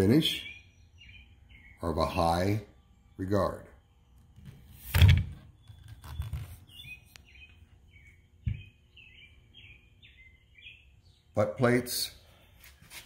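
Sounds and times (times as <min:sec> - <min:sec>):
small bird chirping: 0:00.2 - 0:03.2, 0:05.4 - 0:11.4
dull thump: 0:08.4 - 0:08.7.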